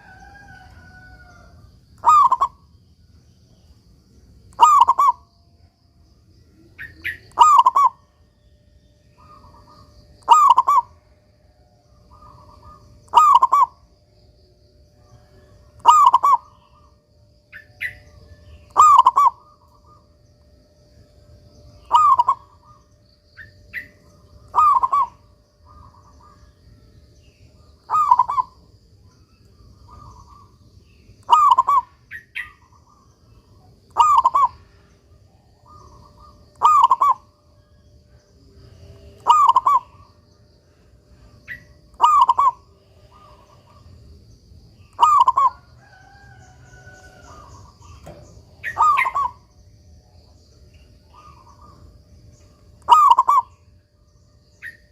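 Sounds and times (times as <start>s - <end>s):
dove cooing: 0.0s - 2.6s, 4.5s - 5.3s, 6.7s - 8.2s, 9.1s - 11.1s, 12.0s - 14.0s, 15.1s - 20.2s, 21.7s - 26.6s, 27.8s - 28.7s, 29.6s - 37.8s, 38.5s - 44.1s, 44.8s - 49.5s, 51.1s - 52.0s, 52.8s - 53.6s.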